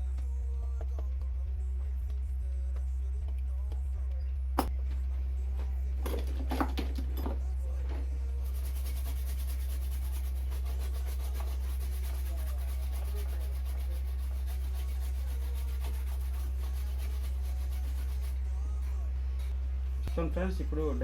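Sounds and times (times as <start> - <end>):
low electrical hum: 0.0 - 21.0
fast scratchy rubbing: 8.4 - 19.0.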